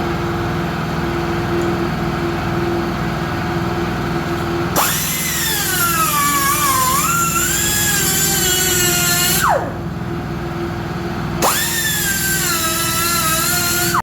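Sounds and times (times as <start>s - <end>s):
power tool motor whining: 4.8s - 9.8s, 11.4s - 14.0s.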